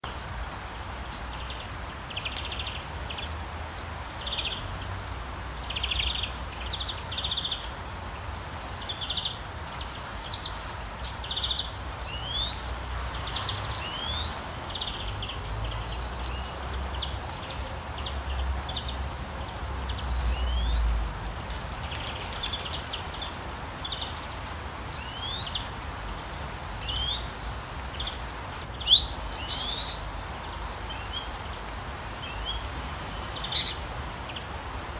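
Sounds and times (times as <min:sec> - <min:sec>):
rain hissing: 0:00.0 - 0:34.9
birds calling: 0:08.8 - 0:20.9, 0:21.5 - 0:34.9.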